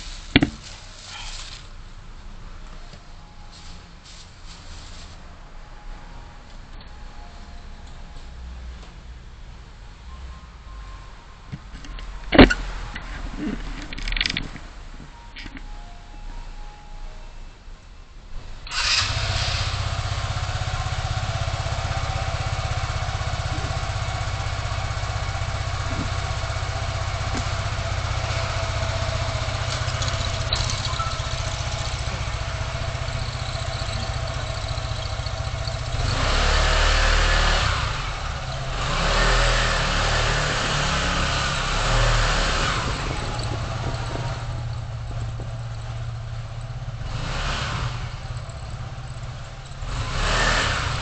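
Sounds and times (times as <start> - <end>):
car engine and road hum: 0.0 - 51.0
passing vehicles rushing: 18.4 - 51.0.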